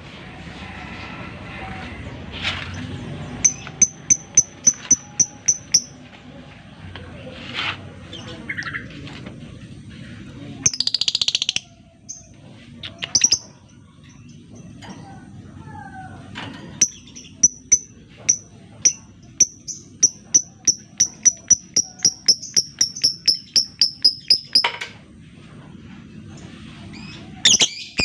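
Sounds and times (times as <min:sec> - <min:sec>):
bird rattling trill: 0:03.4 - 0:05.9, 0:16.8 - 0:24.7
lovebird chirping: 0:03.4 - 0:06.0, 0:16.8 - 0:24.7, 0:27.0 - 0:28.0.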